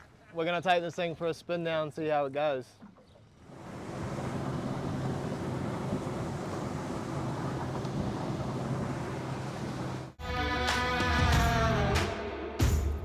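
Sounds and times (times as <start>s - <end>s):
outboard motor humming: 2.8s - 10.2s
water wash: 2.9s - 10.2s.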